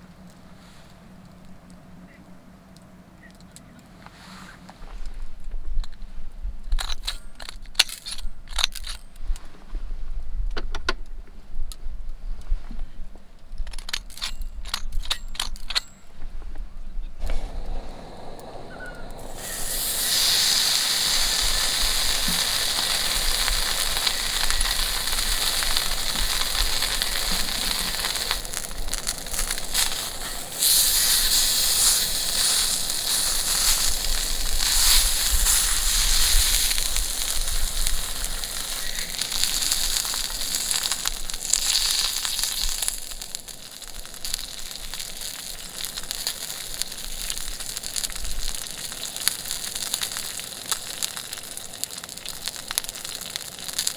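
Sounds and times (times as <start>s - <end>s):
meat sizzling on a grill: 17.3s - 53.9s.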